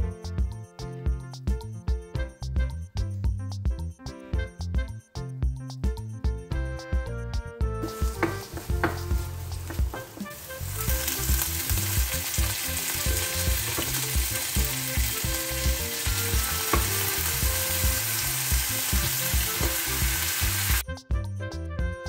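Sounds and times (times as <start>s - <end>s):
background music with steady beat: 0.0s - 22.0s
food sizzling in a frying pan: 7.8s - 20.8s.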